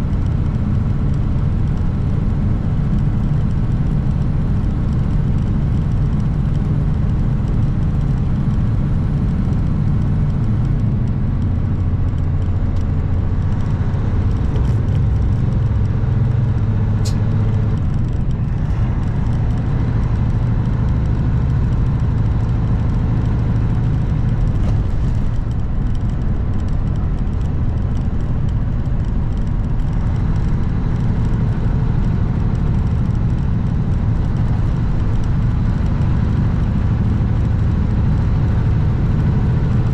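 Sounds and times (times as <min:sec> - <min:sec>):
road noise: 0:00.0 - 0:39.9
truck diesel engine driving: 0:00.0 - 0:39.9.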